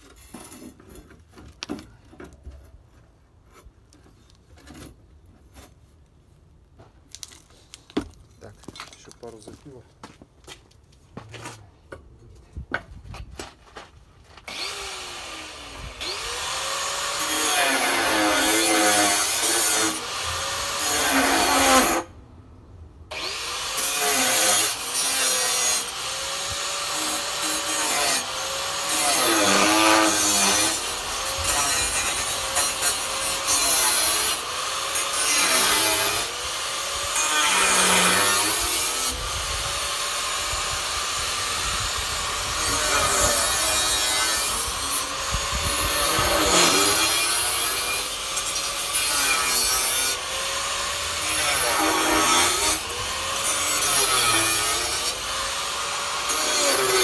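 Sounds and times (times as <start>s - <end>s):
power tool cutting sheet metal: 14.5s - 22.1s, 23.1s - 57.0s.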